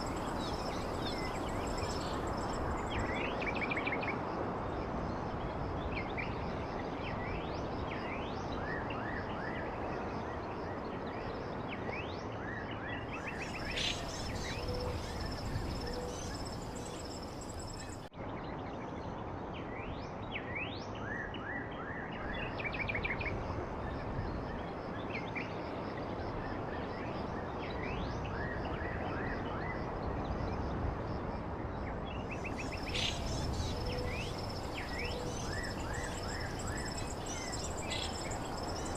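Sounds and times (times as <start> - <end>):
background hiss: 0.0 - 3.6, 13.2 - 18.0, 32.3 - 38.9
songbirds chirping: 0.0 - 9.0, 10.0 - 21.4, 32.1 - 38.9.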